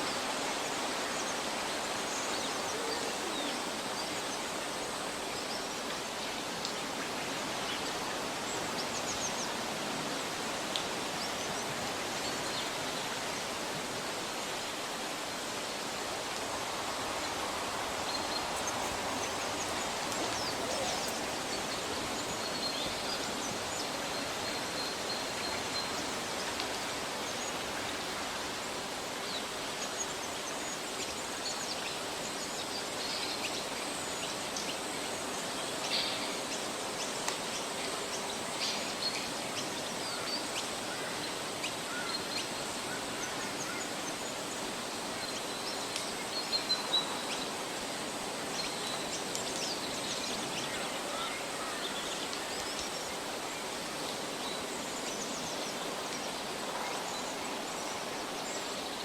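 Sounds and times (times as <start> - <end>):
steady forest hiss: 0.0 - 59.0
bird calls: 18.1 - 23.6.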